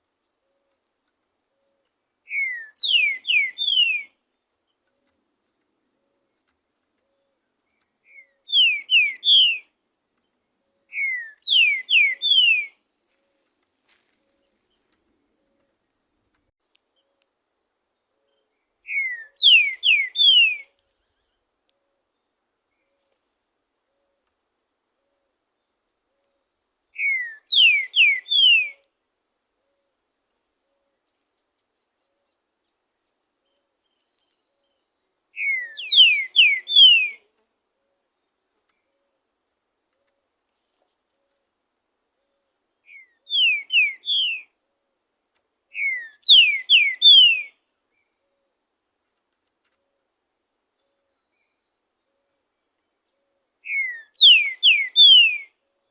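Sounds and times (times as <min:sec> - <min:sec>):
bird singing falling whistles: 0:02.3 - 0:04.1, 0:08.1 - 0:09.6, 0:10.9 - 0:12.7, 0:18.9 - 0:20.7, 0:27.0 - 0:28.8, 0:35.4 - 0:37.2, 0:42.9 - 0:44.5, 0:45.8 - 0:47.5, 0:53.7 - 0:55.5.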